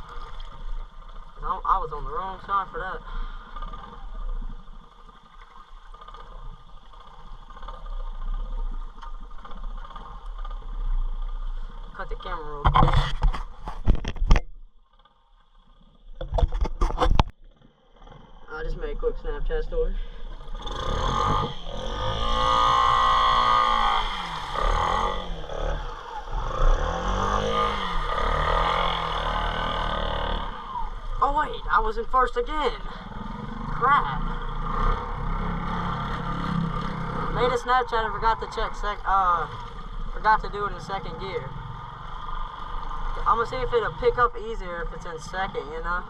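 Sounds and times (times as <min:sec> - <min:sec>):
small motorbike engine running: 0:20.4 - 0:31.2, 0:32.9 - 0:40.1.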